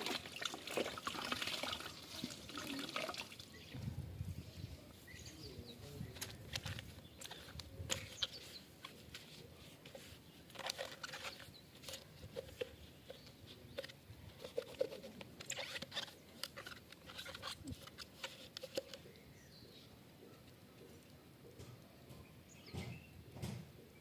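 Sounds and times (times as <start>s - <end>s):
plastic parts clicking and scraping: 6.0s - 19.2s.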